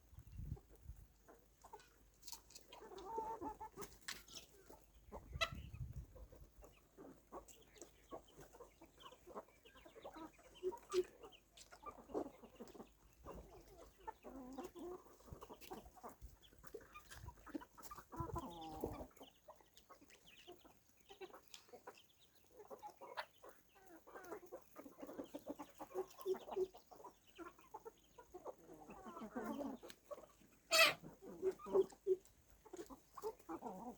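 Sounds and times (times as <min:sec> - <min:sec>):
chickens clucking: 0:00.0 - 0:33.9.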